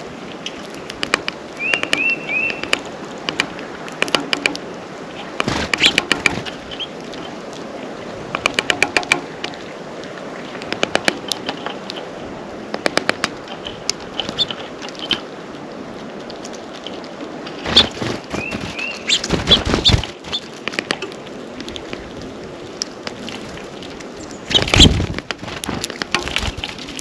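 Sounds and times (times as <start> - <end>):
birds pecking taps: 0.4 - 7.6, 8.3 - 12.1, 12.7 - 15.3, 16.1 - 27.0
wings fluttering and knocking: 0.9 - 4.6, 5.2 - 7.3, 8.3 - 9.6, 10.6 - 12.1, 12.7 - 15.3, 16.3 - 22.1, 23.0 - 27.0
short high bird chirps: 1.6 - 2.7.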